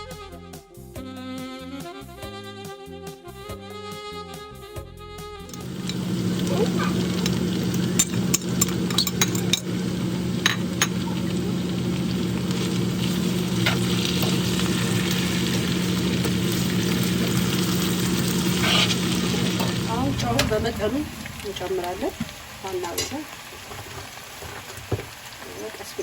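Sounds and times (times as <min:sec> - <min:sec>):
low hum: 0:05.5 - 0:23.4
food sizzling in a pot: 0:05.5 - 0:26.0.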